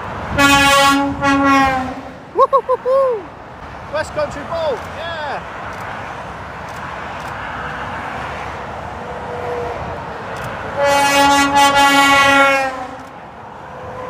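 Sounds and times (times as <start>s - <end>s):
motorway traffic noise: 0.0s - 14.0s
lorry air horn blast: 0.3s - 2.2s, 10.8s - 13.1s.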